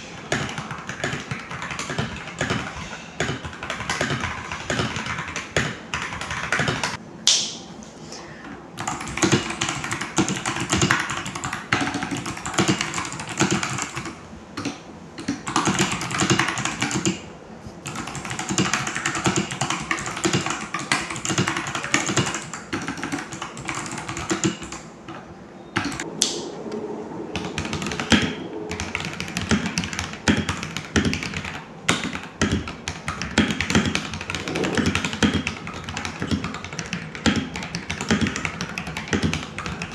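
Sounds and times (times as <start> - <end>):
mechanical keyboard typing: 0.3 - 7.0, 8.8 - 17.2, 17.8 - 24.8, 28.8 - 39.9.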